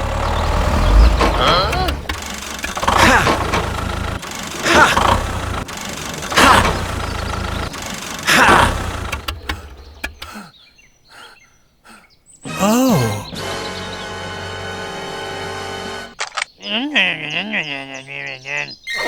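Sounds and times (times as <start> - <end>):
tractor engine revving: 0.0 - 10.4.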